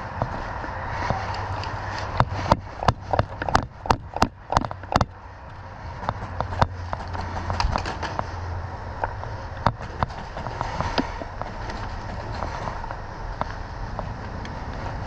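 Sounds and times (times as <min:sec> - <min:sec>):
steady low hum: 0:00.0 - 0:15.0
scattered ticks: 0:01.2 - 0:08.4, 0:09.0 - 0:15.0
sharp clicks: 0:01.3 - 0:08.3.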